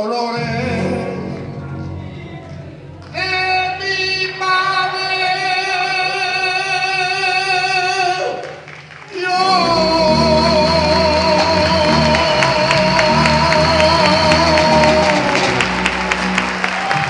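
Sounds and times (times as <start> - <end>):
person singing sustained notes: 9.2 - 15.6.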